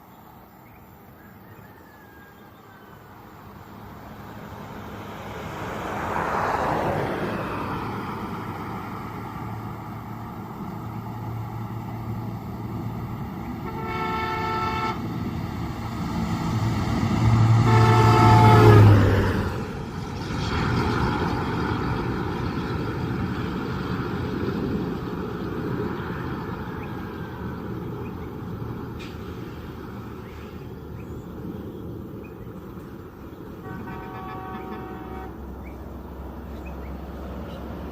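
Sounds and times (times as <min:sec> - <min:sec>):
vehicle passing: 0:01.3 - 0:37.9
bus engine running: 0:03.0 - 0:37.9
bus horn blasts: 0:13.6 - 0:15.2, 0:17.5 - 0:19.0, 0:33.6 - 0:35.5.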